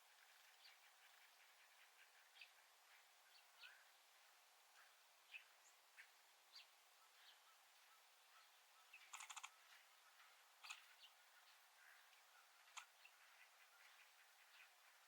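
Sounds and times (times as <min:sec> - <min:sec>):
small birds chirping: 0:00.0 - 0:15.0
rattle of sharp clicks: 0:09.1 - 0:09.5.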